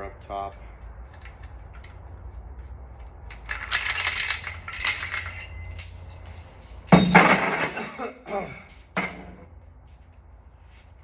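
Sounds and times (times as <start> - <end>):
metal engine parts and tools clinking: 3.2 - 8.0.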